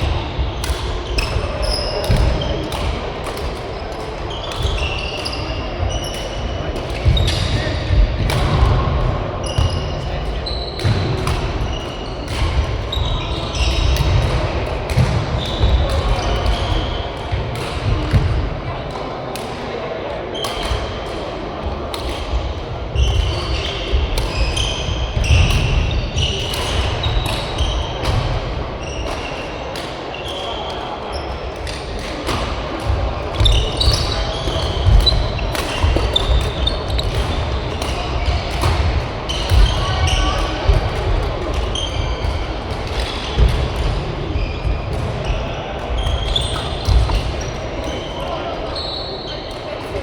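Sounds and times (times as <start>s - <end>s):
rackets striking shuttlecock: 0.0s - 8.8s, 10.8s - 18.5s, 21.9s - 22.4s, 31.6s - 44.0s, 44.9s - 48.0s
shoes squeaking on court floor: 9.4s - 18.3s, 32.8s - 40.7s, 41.5s - 49.8s
shoes squeaking on floor: 33.2s - 38.5s, 44.4s - 49.6s.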